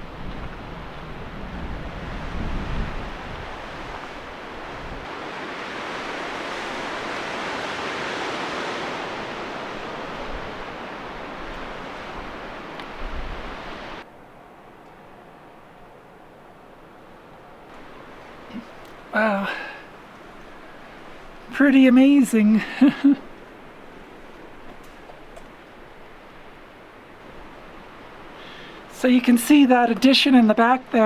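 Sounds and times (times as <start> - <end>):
wind buffeting microphone: 0.0 - 14.0
strong gusting wind: 0.0 - 31.0.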